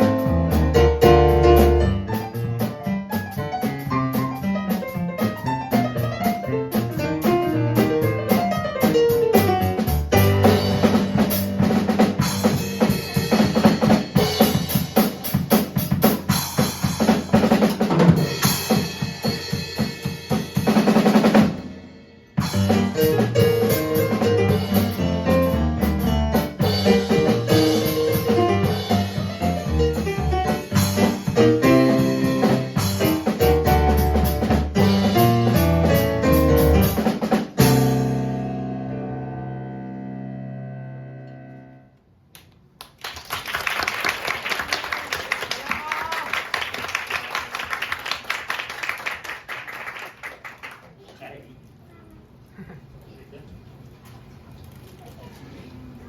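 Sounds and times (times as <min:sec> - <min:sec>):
live drum kit playing: 0:00.0 - 0:40.3
keyboard chords: 0:22.6 - 0:42.0.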